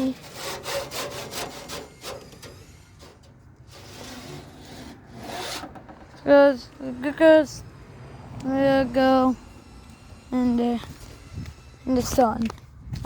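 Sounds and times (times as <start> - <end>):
rhythmic rubbing and scraping: 0.0 - 6.3
scraping rustle: 0.0 - 6.6.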